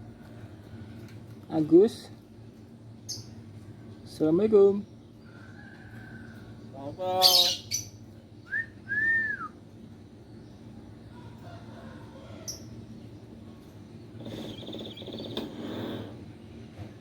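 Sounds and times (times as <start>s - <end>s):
bird whistling: 8.5s - 9.6s, 14.3s - 15.4s
bird buzzy trill: 14.2s - 16.1s.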